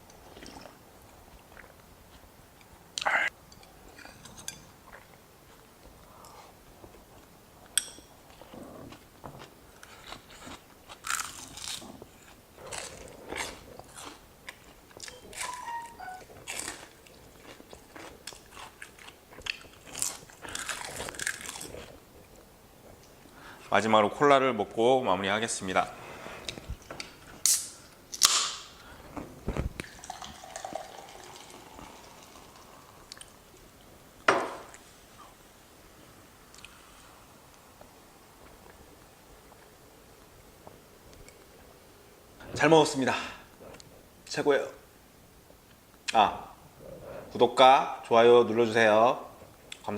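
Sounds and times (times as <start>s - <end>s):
person chewing crunchy food: 8.3s - 15.5s, 16.4s - 22.4s
can opening with fizzing hiss: 27.4s - 28.6s
liquid fizzing: 29.8s - 32.7s.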